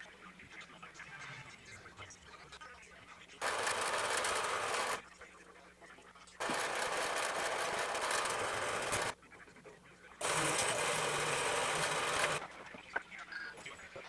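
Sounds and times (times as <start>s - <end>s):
band saw cutting metal: 3.4s - 5.0s, 6.4s - 9.2s, 10.2s - 12.4s.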